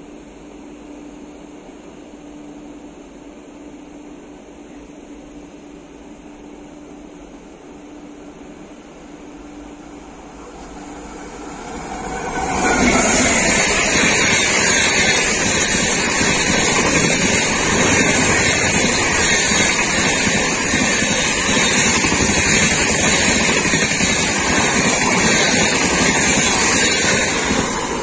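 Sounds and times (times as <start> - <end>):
train passing with rushing noise: 6.1 - 28.0.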